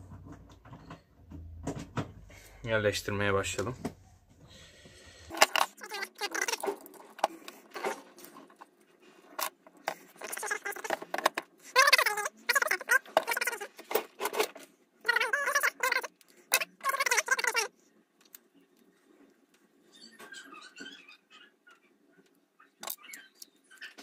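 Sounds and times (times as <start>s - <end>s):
plastic squeaks: 5.3s - 8.6s, 9.4s - 17.7s, 19.8s - 22.0s, 22.6s - 24.0s
plastic parts clicking and rattling: 5.3s - 17.6s, 22.8s - 24.0s.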